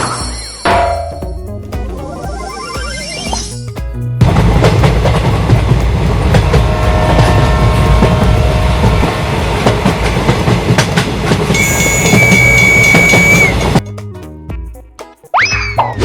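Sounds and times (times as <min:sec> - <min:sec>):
train rumbling on track: 0:03.9 - 0:13.8
high whistle-like tone: 0:11.5 - 0:13.7.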